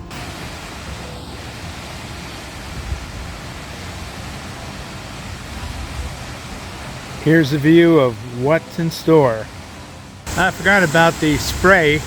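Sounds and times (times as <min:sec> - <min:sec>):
large waterfall rushing: 0:00.0 - 0:12.0.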